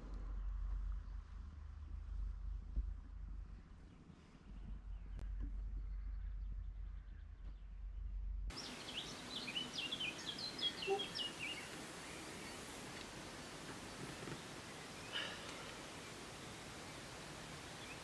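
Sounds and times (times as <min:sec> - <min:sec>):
outdoor hiss: 0:08.5 - 0:18.0
songbird singing: 0:08.5 - 0:18.0.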